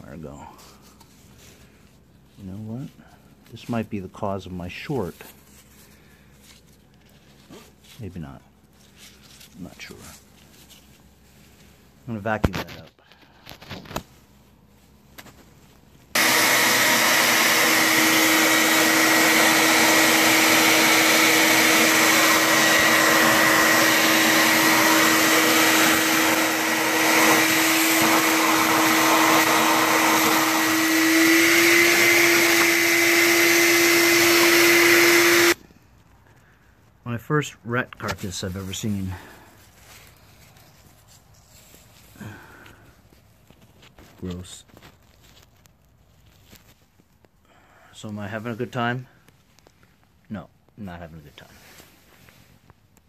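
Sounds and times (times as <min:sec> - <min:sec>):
vacuum cleaner running: 0:16.1 - 0:35.6.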